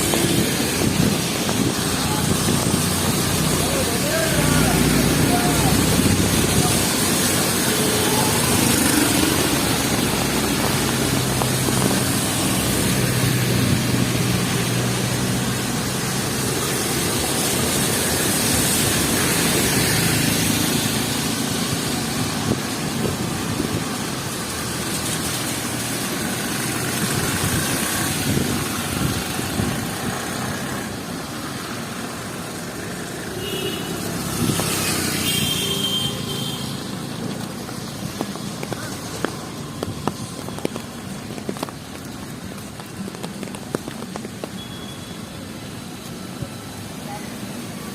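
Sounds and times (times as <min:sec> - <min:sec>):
rain hiss: 0:00.0 - 0:47.9.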